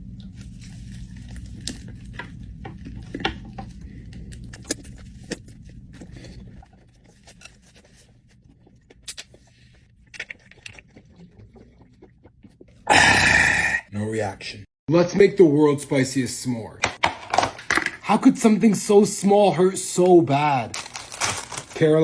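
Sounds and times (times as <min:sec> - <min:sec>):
low steady hum: 0:00.0 - 0:16.8.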